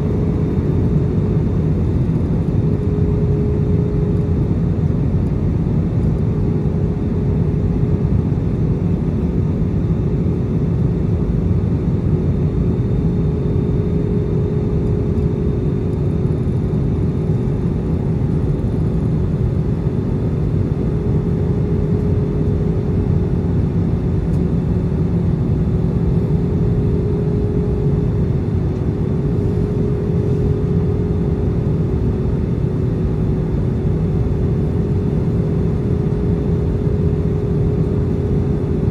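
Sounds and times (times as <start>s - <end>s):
aircraft engine and airflow noise: 0.0s - 38.9s
steady cabin hum: 13.0s - 38.9s.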